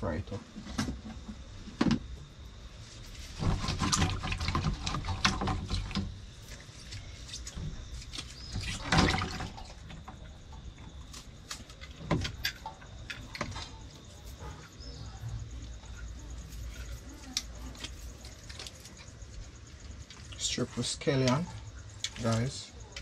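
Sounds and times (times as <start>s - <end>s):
wet squelches and clicks: 15.5s - 20.4s, 21.2s - 23.0s.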